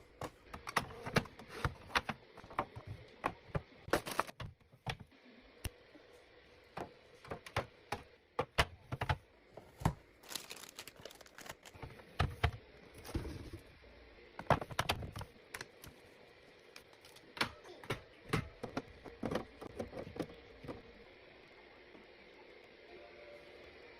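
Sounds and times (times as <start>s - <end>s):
packaging crinkling: 10.1s - 11.8s.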